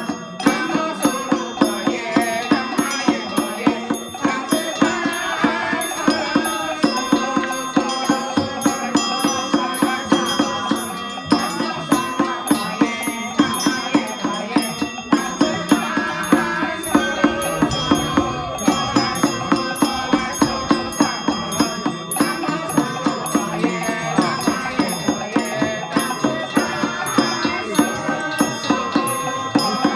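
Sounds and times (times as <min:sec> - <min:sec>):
bells: 0:00.0 - 0:29.9
sharp percussive strikes: 0:00.0 - 0:29.9
wavering melody: 0:00.0 - 0:29.9.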